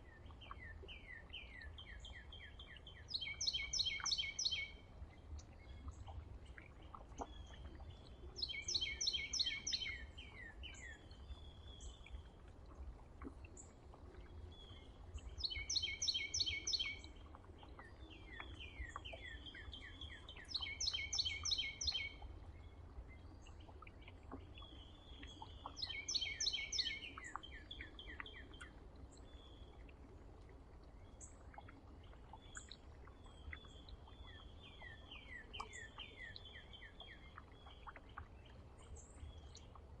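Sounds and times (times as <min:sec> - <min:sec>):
songbird singing: 0:00.0 - 0:12.3, 0:13.2 - 0:29.8, 0:30.8 - 0:40.0.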